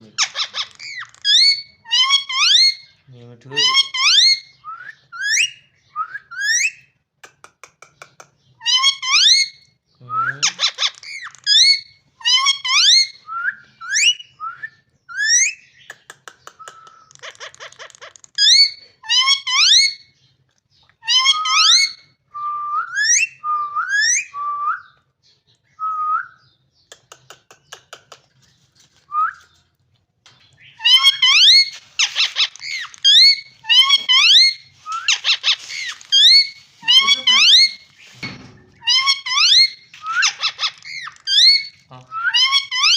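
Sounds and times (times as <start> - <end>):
parrot rattling trills: 0.2 - 2.8, 10.5 - 13.2, 30.8 - 42.9
parrot whistling: 30.8 - 38.0, 38.8 - 42.9.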